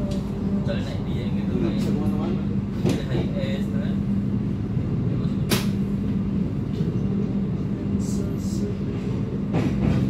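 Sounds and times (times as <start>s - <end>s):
train rumbling on rails: 0.0s - 10.0s
wheels clacking on rails: 9.5s - 10.0s.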